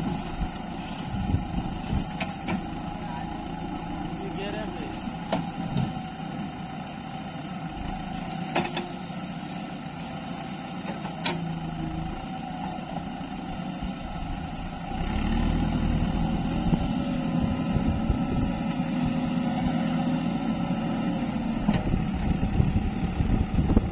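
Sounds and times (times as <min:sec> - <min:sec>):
diesel engine of heavy machinery: 0:00.0 - 0:23.9.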